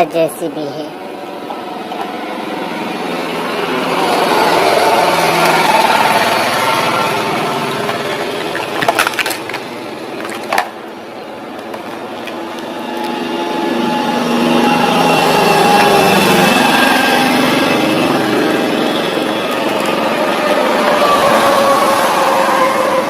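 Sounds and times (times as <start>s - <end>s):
plastic toy wheels rolling: 7.8s - 10.8s.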